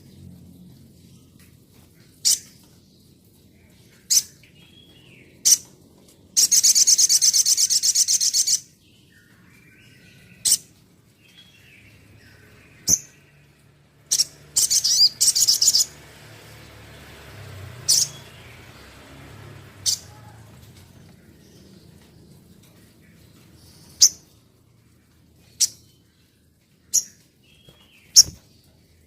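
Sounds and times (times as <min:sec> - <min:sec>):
bird high chirps: 0:06.4 - 0:10.7, 0:14.0 - 0:16.0, 0:17.8 - 0:18.6, 0:19.8 - 0:20.9, 0:26.8 - 0:28.6.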